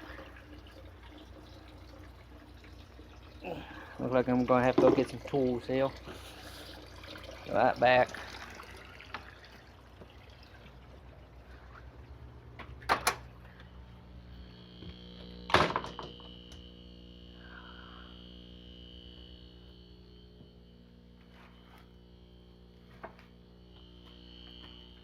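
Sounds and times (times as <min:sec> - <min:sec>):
faint watery background: 0:00.0 - 0:15.2
steady hum: 0:00.0 - 0:25.0
high whine: 0:11.9 - 0:25.0.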